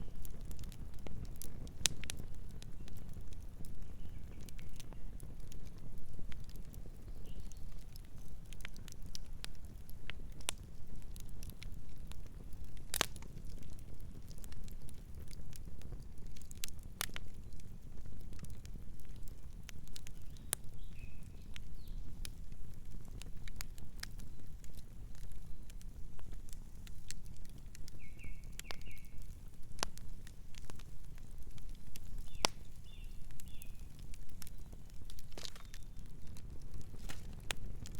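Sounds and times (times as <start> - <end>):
campfire crackling and popping: 0.0 - 37.9
faint bird chirp: 3.8 - 5.2, 27.9 - 29.3, 32.2 - 34.8.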